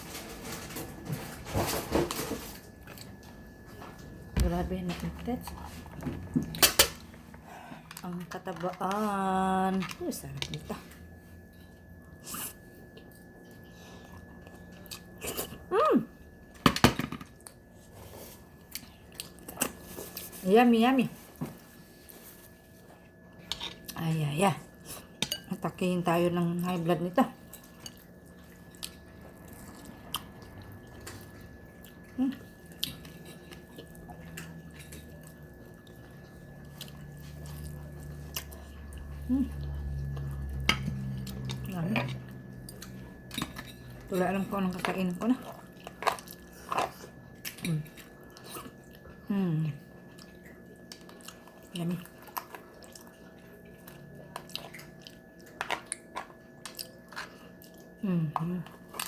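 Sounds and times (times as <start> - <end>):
soft chewing: 17.4 - 20.4, 26.6 - 59.0
low hum: 28.9 - 46.0.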